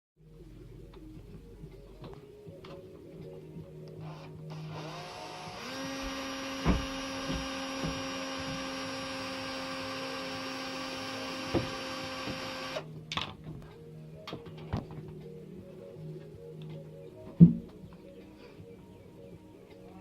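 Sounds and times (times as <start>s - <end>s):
power drill motor running: 4.0s - 12.9s
sharp knocks: 6.6s - 8.7s.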